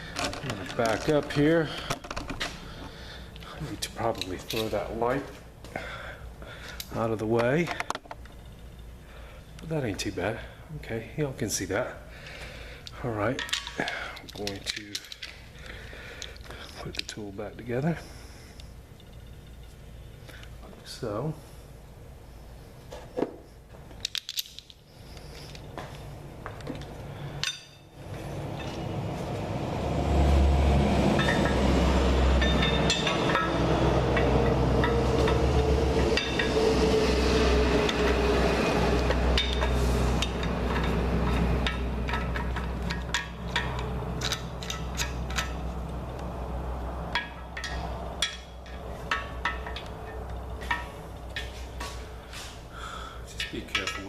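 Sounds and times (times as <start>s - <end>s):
metal tool clinking: 27.4s - 28.8s, 31.1s - 46.2s, 47.1s - 52.1s, 53.3s - 54.0s.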